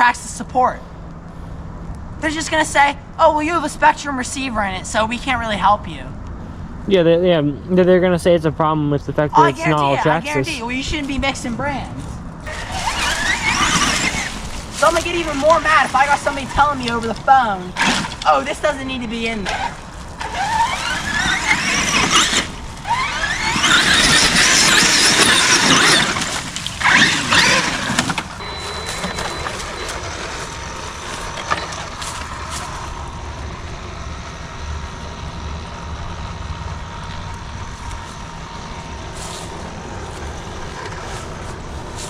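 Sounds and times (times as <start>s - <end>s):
electric motor whining: 12.4s - 42.0s.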